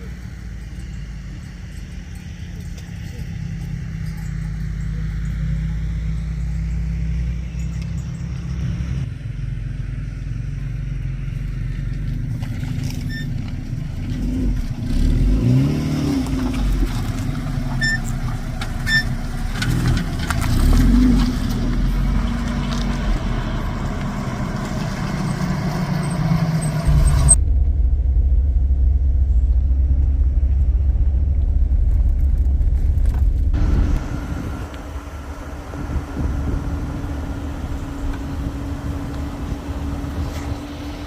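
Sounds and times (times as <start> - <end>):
vehicle engine running: 0.0 - 41.0
heavy low rumble: 16.2 - 41.0
steady hum: 26.9 - 41.0.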